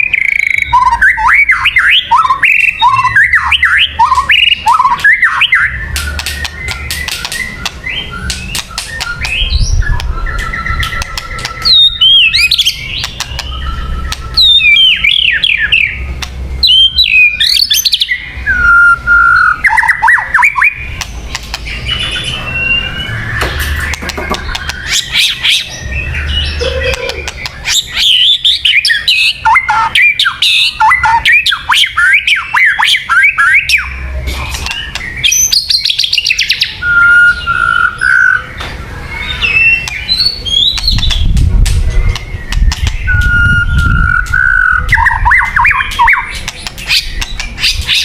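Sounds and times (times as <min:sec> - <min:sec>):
bird singing whistled phrases: 0:00.0 - 0:16.0, 0:16.6 - 0:20.9, 0:21.7 - 0:24.0, 0:24.6 - 0:34.0, 0:34.6 - 0:41.4, 0:42.0 - 0:48.0
sharp bird clicking notes: 0:02.2 - 0:16.8, 0:19.7 - 0:21.8, 0:23.4 - 0:25.7, 0:26.8 - 0:27.9, 0:28.6 - 0:36.6, 0:39.8 - 0:48.0.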